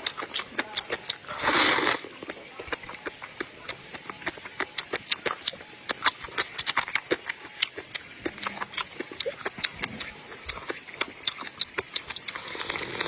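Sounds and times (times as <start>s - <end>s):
person chewing wetly: 0.0s - 13.0s.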